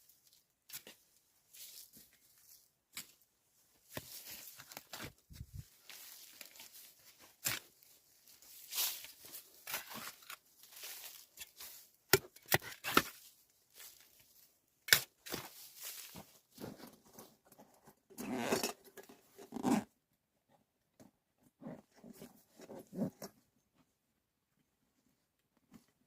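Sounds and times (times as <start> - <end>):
handling rustles and crunches: 0.1 - 19.8.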